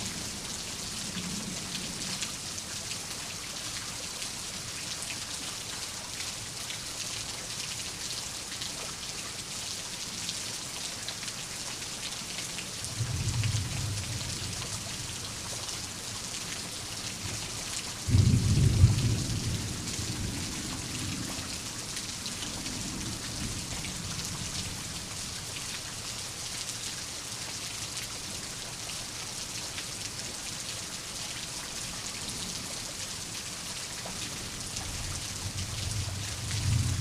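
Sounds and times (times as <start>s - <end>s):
rain pattering: 0.0s - 37.0s
thunder rumbling: 35.6s - 37.0s.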